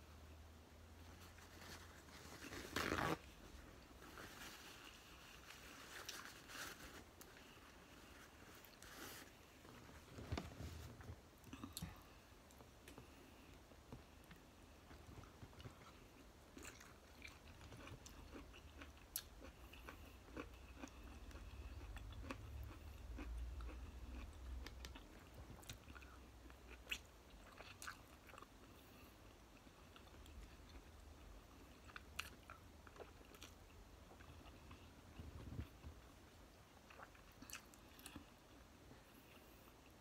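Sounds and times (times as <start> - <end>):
person chewing sausage: 15.1 - 36.1, 36.8 - 40.0.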